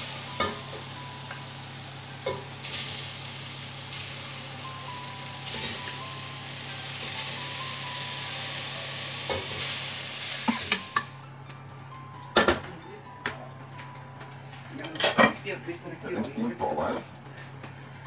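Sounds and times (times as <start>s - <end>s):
chicken sizzling in oil: 0.0s - 11.2s.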